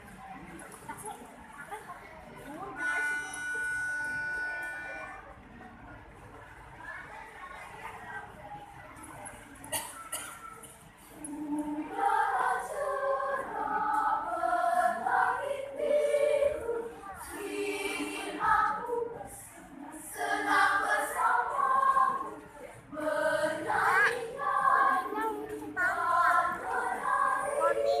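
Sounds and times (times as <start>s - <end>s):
choir singing: 11.2s - 28.0s.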